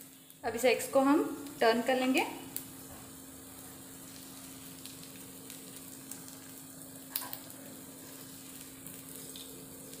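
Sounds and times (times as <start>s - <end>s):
eggs sizzling in oil: 0.0s - 10.0s.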